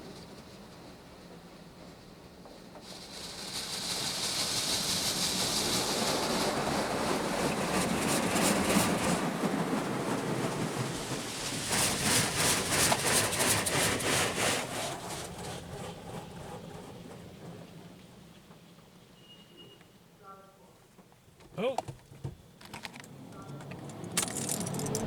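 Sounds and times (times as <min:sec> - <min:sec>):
car wash water jets spraying: 0:02.8 - 0:17.4.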